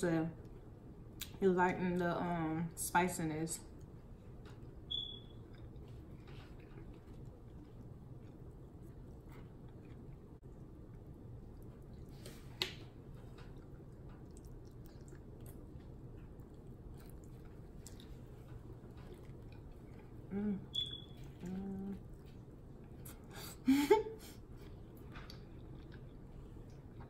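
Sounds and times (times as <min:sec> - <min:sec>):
chewing and biting: 0:05.1 - 0:12.1, 0:13.1 - 0:23.2, 0:24.6 - 0:27.0
person humming: 0:20.3 - 0:20.7, 0:21.4 - 0:22.0.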